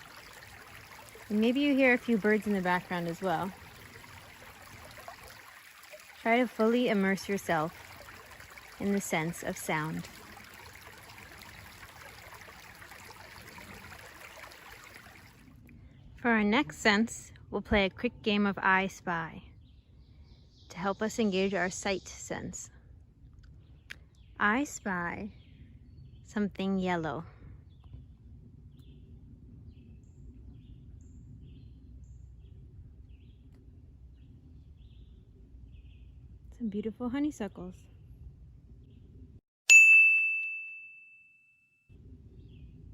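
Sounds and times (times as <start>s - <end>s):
stream running over rocks: 0.0s - 15.6s
low outdoor rumble: 0.0s - 19.6s.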